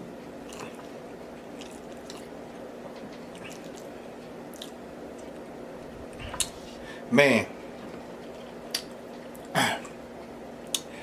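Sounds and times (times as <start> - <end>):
steady low hum: 0.0 - 11.0
person chewing food: 0.4 - 5.5, 8.2 - 10.0
wet mouth clicks and smacks: 8.7 - 9.5.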